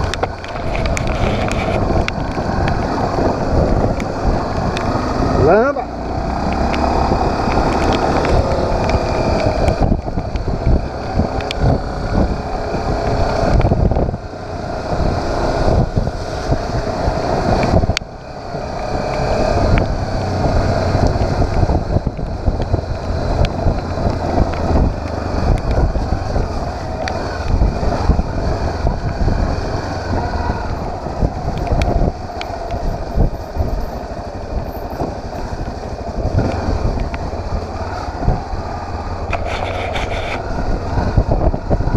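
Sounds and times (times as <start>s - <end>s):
motorcycle engine running: 0.0s - 41.9s
wind buffeting microphone: 0.0s - 41.9s.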